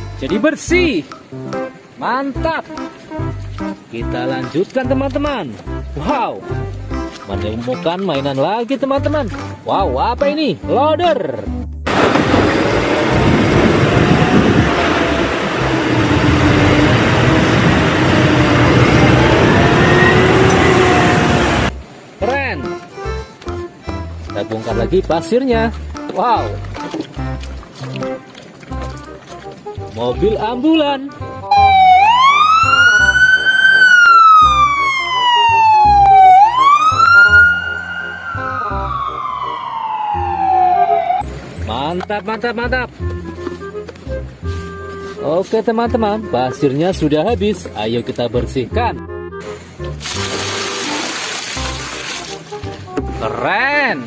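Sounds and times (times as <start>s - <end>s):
background music with steady beat: 0.0s - 11.9s, 21.8s - 50.1s
ambulance siren wailing: 11.9s - 21.7s, 31.5s - 41.3s
loud engine rumble and hiss: 11.9s - 22.0s.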